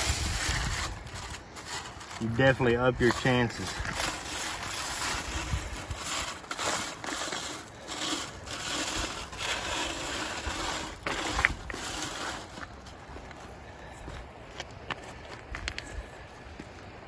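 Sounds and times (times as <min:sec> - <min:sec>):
gravel rattling on wire screen: 0:00.0 - 0:13.0.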